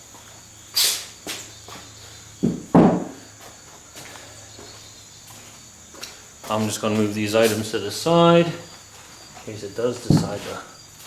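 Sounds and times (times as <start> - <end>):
dull thuds of parts set down: 2.4 - 3.2, 10.1 - 10.6.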